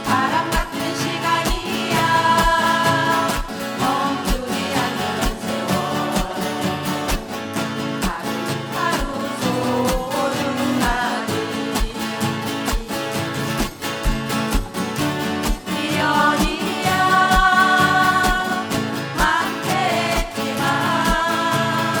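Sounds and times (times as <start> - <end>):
steady drum beat: 0.0 - 3.6, 13.6 - 22.0.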